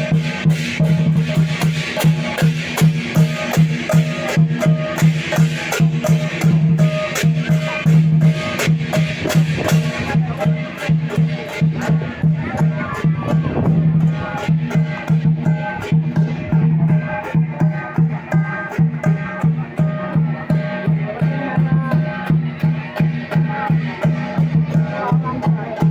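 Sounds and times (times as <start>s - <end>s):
cymbals crashing: 0.0s - 25.9s
drum beating fast: 0.0s - 25.9s.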